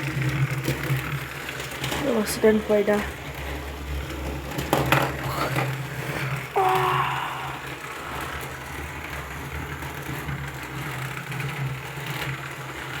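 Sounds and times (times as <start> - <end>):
toy train motor humming: 0.0 - 13.0.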